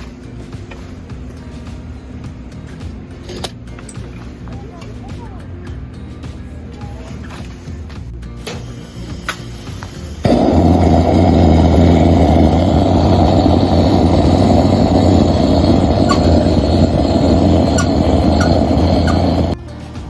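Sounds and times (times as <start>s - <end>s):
engine low rumble: 10.1s - 19.6s.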